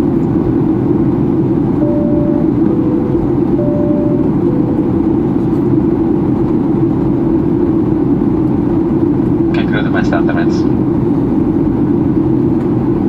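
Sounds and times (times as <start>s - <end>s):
airplane cabin engine roar: 0.0s - 13.0s
two-tone cabin chime: 1.8s - 6.2s.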